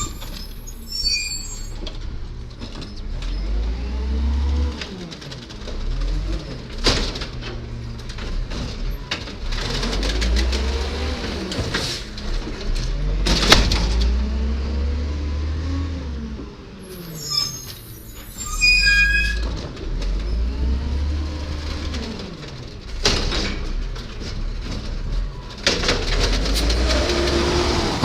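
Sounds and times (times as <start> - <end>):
brief high squeal: 0.0 - 1.9, 16.9 - 19.5
garbage truck diesel engine: 0.0 - 28.0.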